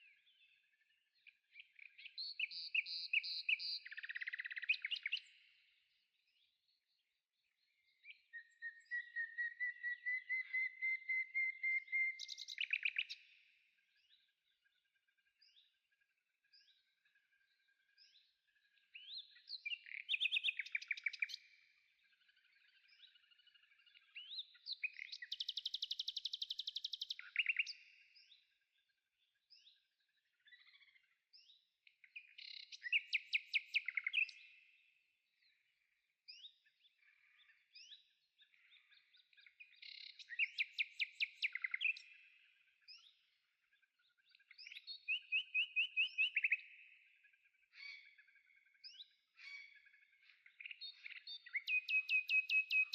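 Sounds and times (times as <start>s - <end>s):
short bird chirps: 1.6s - 5.6s, 7.9s - 14.2s, 18.9s - 21.6s, 22.2s - 28.5s, 30.4s - 34.9s, 37.3s - 43.2s
songbird trilling: 2.0s - 5.2s, 8.3s - 13.1s.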